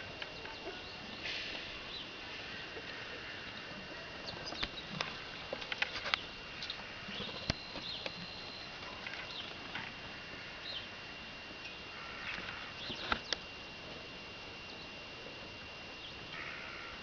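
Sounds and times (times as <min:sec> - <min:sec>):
birds tapping and scrabbling: 0:00.0 - 0:10.9, 0:11.7 - 0:13.4.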